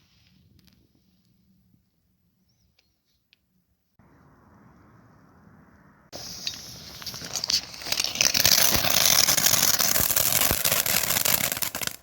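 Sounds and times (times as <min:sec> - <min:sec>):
firework fountain hissing: 0:06.2 - 0:12.0.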